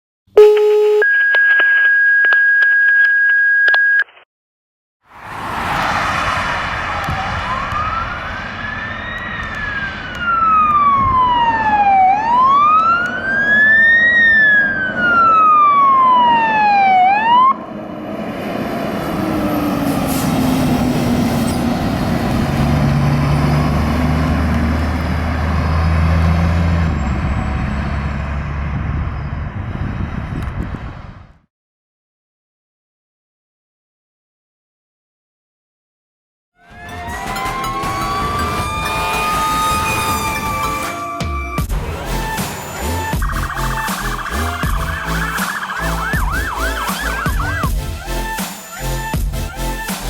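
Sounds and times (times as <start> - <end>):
higher faster siren tone: 0.4 - 1.2, 6.7 - 17.6, 36.6 - 49.2
fire engine siren wailing: 5.5 - 29.0, 36.6 - 50.0
low siren tone winding down: 6.6 - 29.1, 36.6 - 49.9
truck engine running: 41.6 - 48.4.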